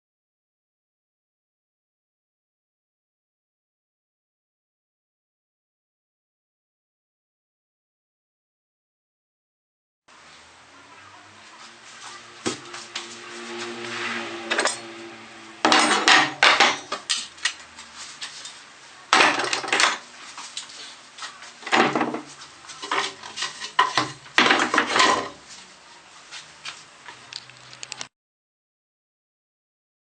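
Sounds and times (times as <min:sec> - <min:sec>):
metal tools clattering and scraping: 0:14.5 - 0:14.9, 0:15.6 - 0:17.4, 0:18.2 - 0:21.0, 0:21.6 - 0:25.4.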